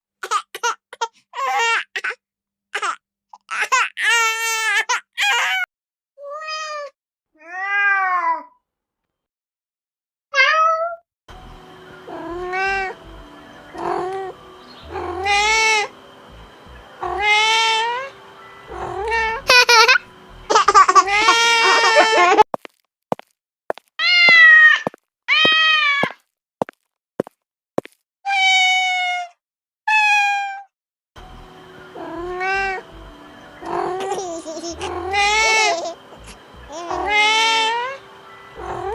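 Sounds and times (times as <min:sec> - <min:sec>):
cat meowing: 0:06.2 - 0:08.5, 0:10.4 - 0:11.0, 0:14.9 - 0:15.9, 0:17.0 - 0:18.1, 0:24.0 - 0:26.1, 0:28.3 - 0:30.7, 0:34.8 - 0:35.9, 0:36.7 - 0:38.0
faint steady hum: 0:11.3 - 0:20.5.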